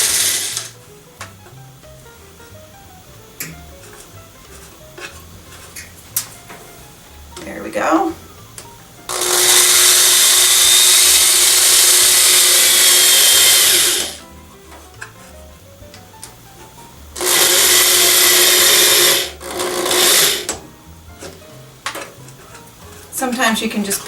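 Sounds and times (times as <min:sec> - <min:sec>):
electric drill boring: 0:00.0 - 0:00.8, 0:09.1 - 0:14.2, 0:17.2 - 0:20.6.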